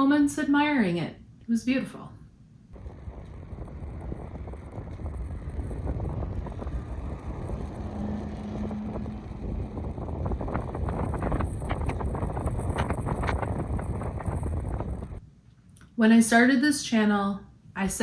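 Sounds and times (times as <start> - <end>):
low hum: 2.1 - 15.6
wind buffeting microphone: 2.7 - 15.2.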